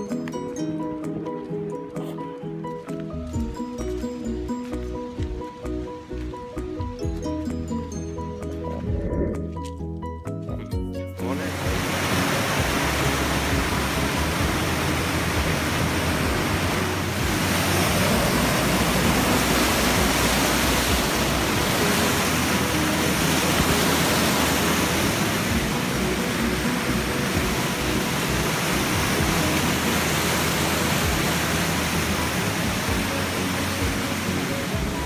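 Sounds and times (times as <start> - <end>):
stream rushing: 11.2 - 35.0.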